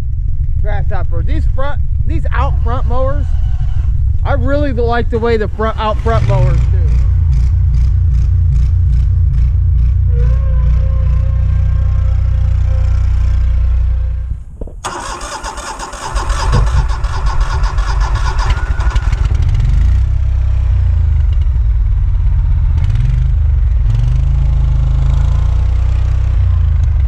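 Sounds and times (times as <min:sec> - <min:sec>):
mower engine running: 0:14.8 - 0:21.2.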